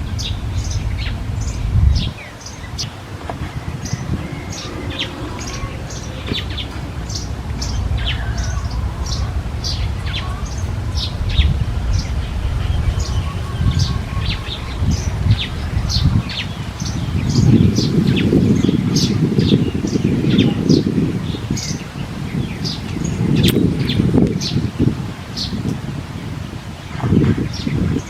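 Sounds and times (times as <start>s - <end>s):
steady low rumble: 0.0s - 21.8s
birds chirping: 0.0s - 28.0s.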